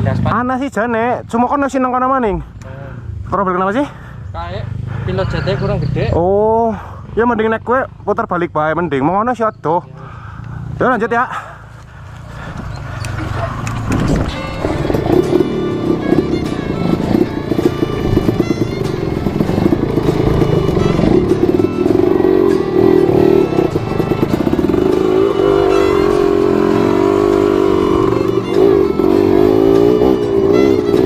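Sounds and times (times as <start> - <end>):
motorcycle engine revving: 10.3 - 31.0.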